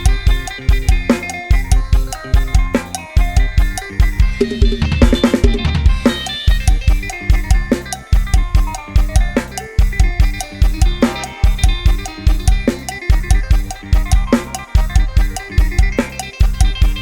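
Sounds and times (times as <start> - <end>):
band music with drums: 0.0 - 17.0
bass and melodic instruments: 0.0 - 17.0
fast kick and snare beat: 0.0 - 17.0.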